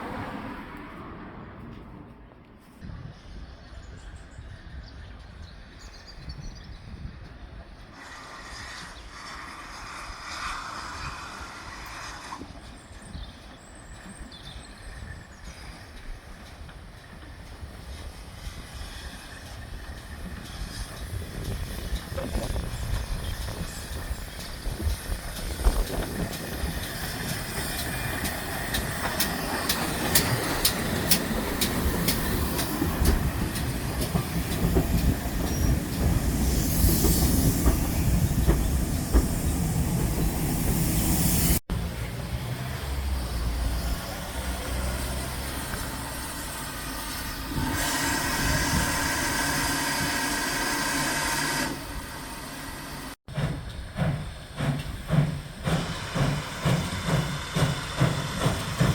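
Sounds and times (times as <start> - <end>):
steam train running past: 2.9 - 58.9
steam hissing: 8.0 - 13.1, 15.0 - 41.6, 42.6 - 58.9
wheels clicking over rail joints: 19.2 - 40.5.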